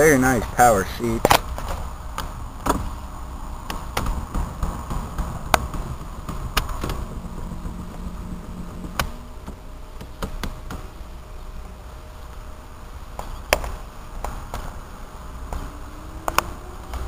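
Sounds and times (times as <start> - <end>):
power seat motor humming: 4.6 - 11.8.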